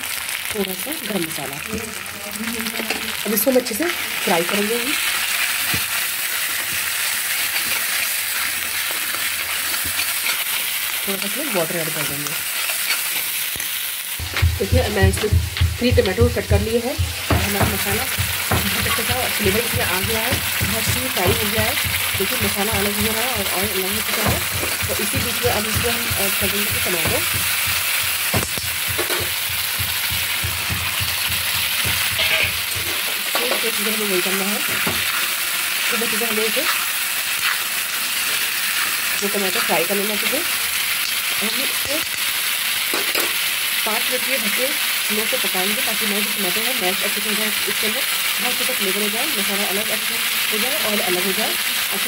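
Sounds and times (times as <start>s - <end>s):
spices sizzling in hot oil: 0.0s - 52.0s
spoon knocking in a pot: 14.2s - 33.6s
spatula scraping a pan: 36.6s - 39.0s.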